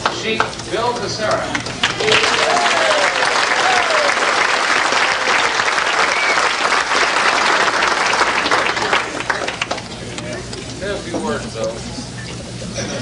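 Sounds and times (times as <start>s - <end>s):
audience applauding: 1.5s - 10.0s.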